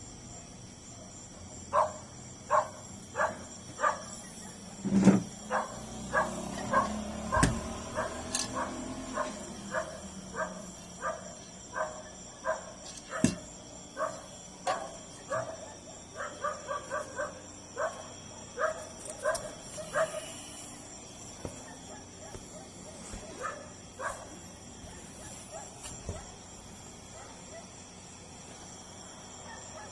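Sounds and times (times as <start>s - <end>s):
dog barking: 1.7s - 4.6s, 5.5s - 20.4s, 21.5s - 26.4s, 27.1s - 27.8s, 29.4s - 29.9s.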